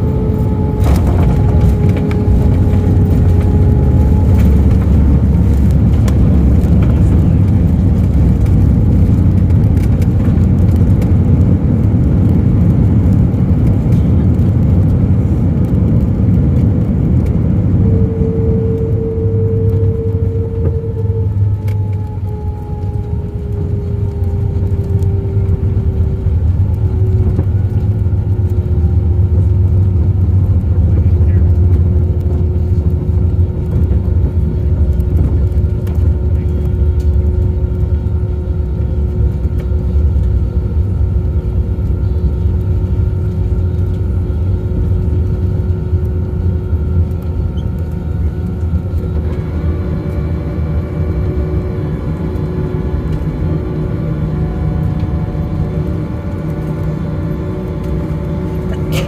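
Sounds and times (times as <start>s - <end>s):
airliner wheels and engines rumbling: 0.0s - 59.0s
thin engine whine: 0.0s - 59.0s.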